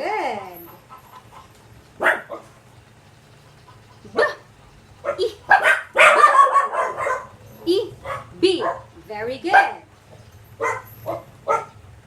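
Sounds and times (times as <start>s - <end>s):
dog barking: 2.0s - 2.6s, 4.1s - 7.4s, 8.0s - 8.9s, 9.5s - 9.9s, 10.6s - 11.8s.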